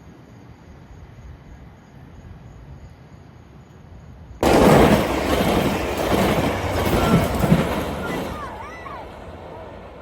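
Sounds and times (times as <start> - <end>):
faint outdoor background: 0.0 - 10.0
train passing: 4.2 - 10.0.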